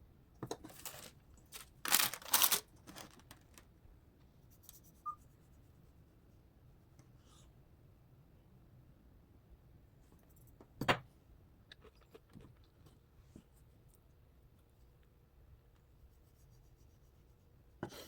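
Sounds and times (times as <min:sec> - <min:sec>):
tearing and rustling: 0:00.7 - 0:03.6.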